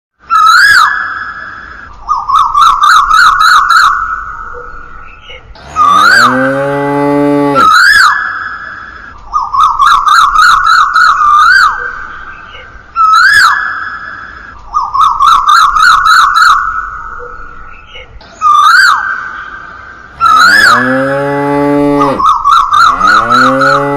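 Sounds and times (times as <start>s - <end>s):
lower rising electronic tone: 5.6s - 7.8s, 20.1s - 23.9s
warbling electronic siren tone: 5.6s - 8.3s, 20.2s - 23.9s.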